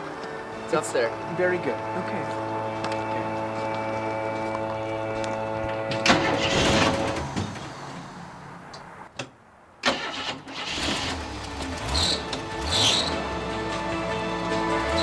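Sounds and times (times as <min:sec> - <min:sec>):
truck engine starting and revving: 0:05.4 - 0:08.7, 0:09.8 - 0:15.0.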